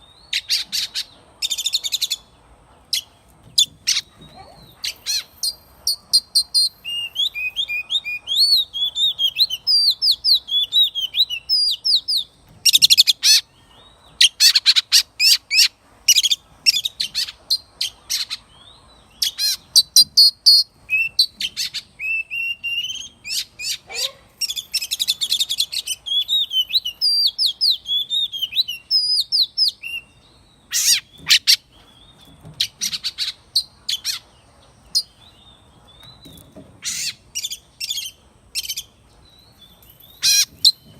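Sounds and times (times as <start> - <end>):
bird singing whistled phrases: 6.2 - 12.3, 22.0 - 31.4.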